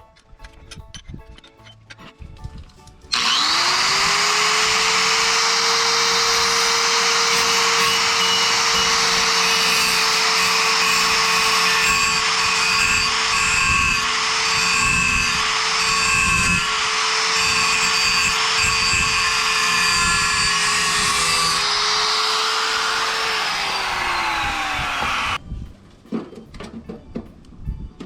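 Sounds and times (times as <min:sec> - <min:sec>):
angle grinder cutting steel: 0:03.1 - 0:25.4.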